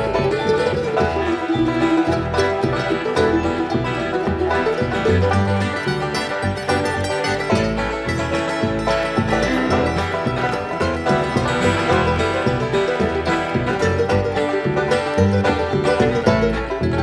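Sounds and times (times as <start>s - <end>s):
bluegrass band playing: 0.0s - 17.0s
plucked banjo notes: 0.0s - 17.0s
upright bass line: 0.0s - 17.0s.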